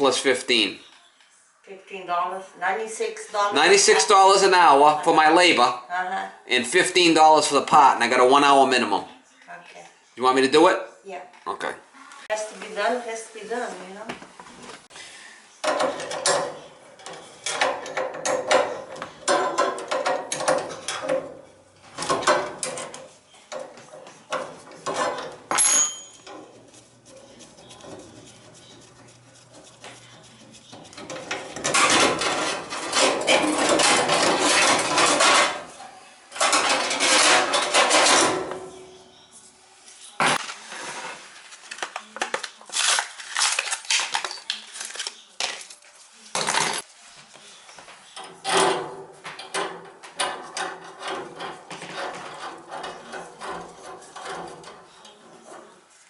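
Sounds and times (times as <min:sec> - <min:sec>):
metal tools clattering: 0:15.6 - 0:26.7, 0:31.0 - 0:38.8.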